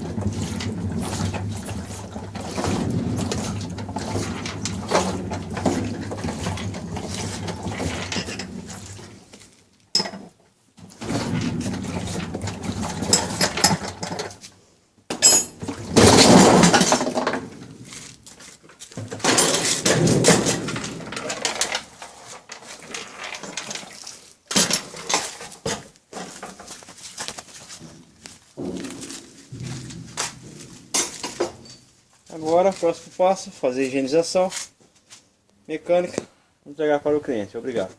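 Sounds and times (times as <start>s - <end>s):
metal parts clanking and scraping: 0.0s - 9.2s, 10.9s - 14.4s, 15.2s - 32.0s.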